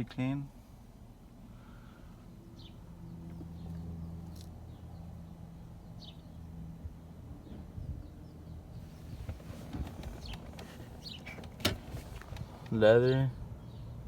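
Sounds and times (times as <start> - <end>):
low engine hum: 0.6 - 14.0
bird chirps: 10.1 - 11.4.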